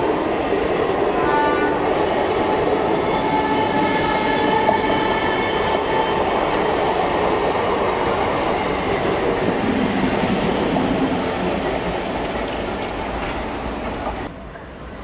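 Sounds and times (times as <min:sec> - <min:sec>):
train wheels rumbling and clattering: 0:01.8 - 0:15.0.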